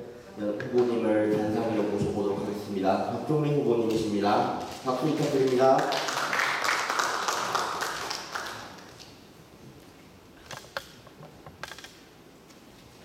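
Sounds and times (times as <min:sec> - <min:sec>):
audience applauding: 0:05.2 - 0:09.0.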